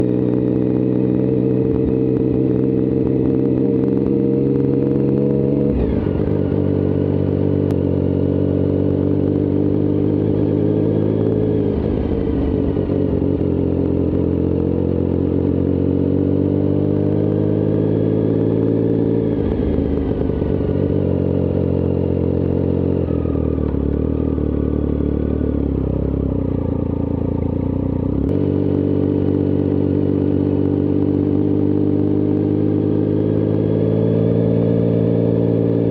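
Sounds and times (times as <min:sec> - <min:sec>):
motorcycle engine idling: 0:19.5 - 0:31.3.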